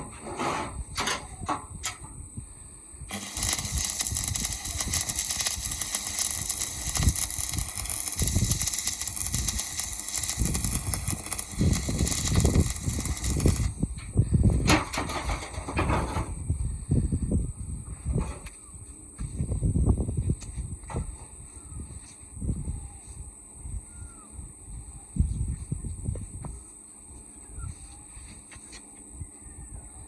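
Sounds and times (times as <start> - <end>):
welding arc crackling and hissing: 3.1 - 15.4.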